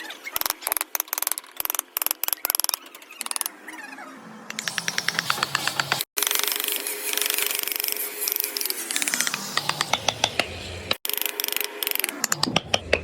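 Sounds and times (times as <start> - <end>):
carving tools scraping wood: 4.5 - 13.0.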